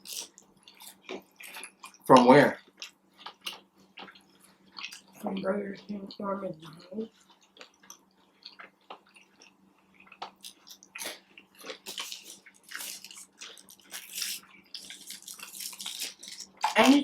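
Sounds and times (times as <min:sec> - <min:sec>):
chewing and biting food: 0:00.0 - 0:16.9.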